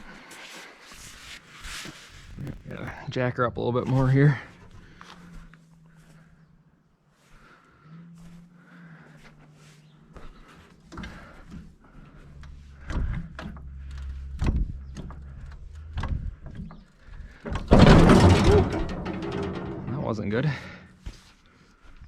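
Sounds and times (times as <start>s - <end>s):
metal clanks and knocks: 1.6s - 3.0s, 10.9s - 21.0s
loud crash of machine dropping: 17.5s - 20.8s.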